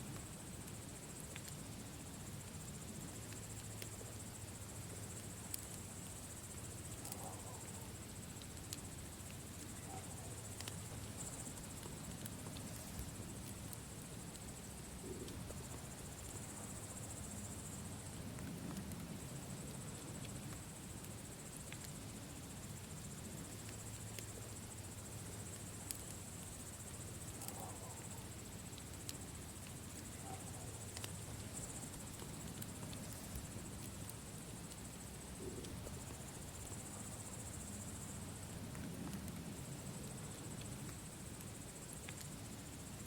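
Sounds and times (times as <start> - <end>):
campfire crackling and popping: 0.0 - 43.0
crickets chirring: 0.0 - 43.0.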